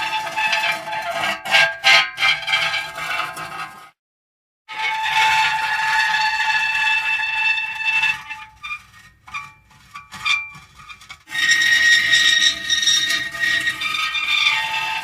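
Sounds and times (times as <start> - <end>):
metal creaking: 8.2 - 15.0.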